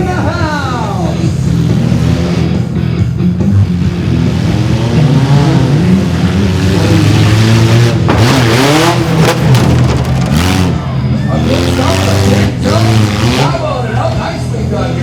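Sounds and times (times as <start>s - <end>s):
loud rush of noise: 8.0s - 11.2s.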